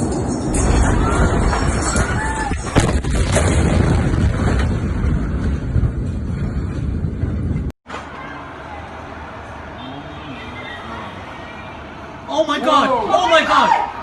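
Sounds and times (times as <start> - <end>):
explosion rumbling: 0.0 - 7.8.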